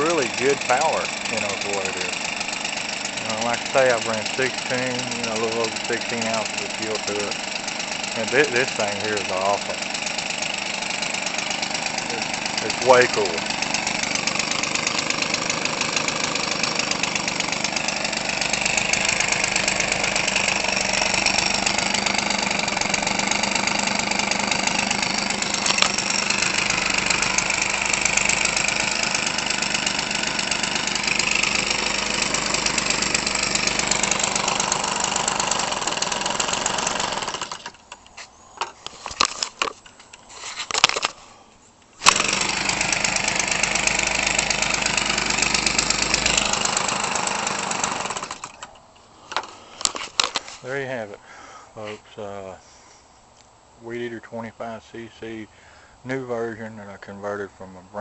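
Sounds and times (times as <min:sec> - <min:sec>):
two-stroke engine with propeller: 0:00.0 - 0:38.0, 0:42.0 - 0:50.4.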